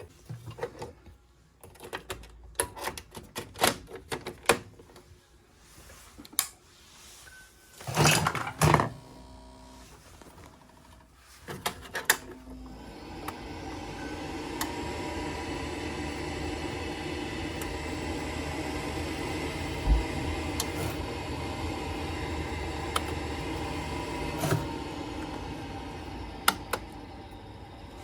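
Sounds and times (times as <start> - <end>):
faint steady hum with tones: 12.0 - 28.0.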